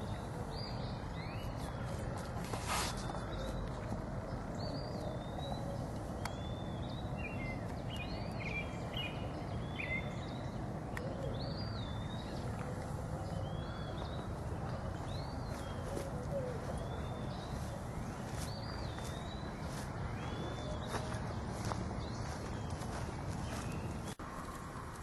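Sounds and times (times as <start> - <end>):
songbirds whistling: 4.6 - 24.2.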